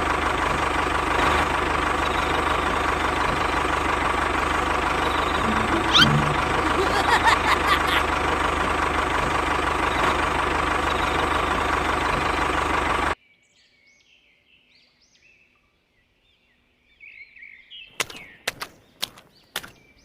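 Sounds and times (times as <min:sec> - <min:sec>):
faint bird chirps: 0:05.0 - 0:07.1
sharp clicks: 0:18.0 - 0:19.8.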